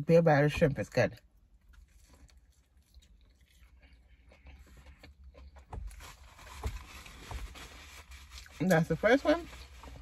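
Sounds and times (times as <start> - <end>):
biting and chewing: 1.4 - 8.8.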